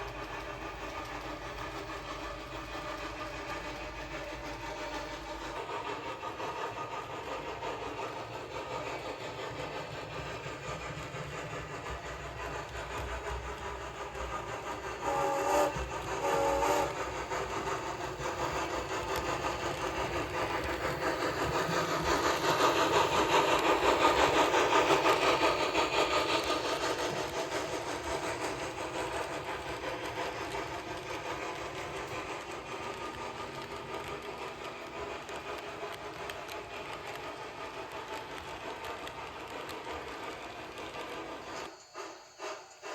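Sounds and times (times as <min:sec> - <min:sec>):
model train running on track: 0:00.0 - 0:42.9
model locomotive toots: 0:14.8 - 0:17.7.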